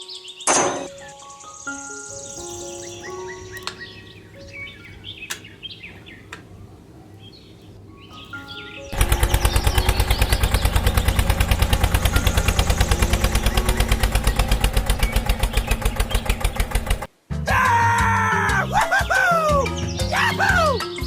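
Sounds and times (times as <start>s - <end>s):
background music: 0.0s - 5.4s, 8.1s - 16.1s, 17.0s - 21.0s
birds chirping faintly: 0.0s - 17.2s, 18.8s - 21.0s
small motor pulsing: 9.0s - 17.1s.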